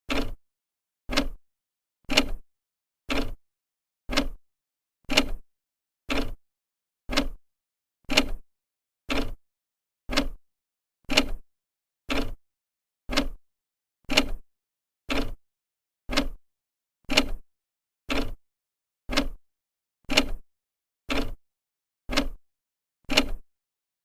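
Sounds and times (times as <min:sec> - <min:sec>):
clock ticking: 0:00.1 - 0:00.4, 0:01.1 - 0:01.4, 0:03.1 - 0:03.4, 0:04.1 - 0:04.4, 0:06.1 - 0:06.4, 0:07.1 - 0:07.4, 0:09.1 - 0:09.4, 0:10.1 - 0:10.4, 0:12.1 - 0:12.4, 0:13.1 - 0:13.4, 0:15.1 - 0:15.4, 0:16.1 - 0:16.4, 0:17.1 - 0:17.4, 0:18.1 - 0:18.4, 0:19.1 - 0:19.4, 0:20.1 - 0:20.4, 0:21.1 - 0:21.4, 0:22.1 - 0:22.4, 0:23.1 - 0:23.4.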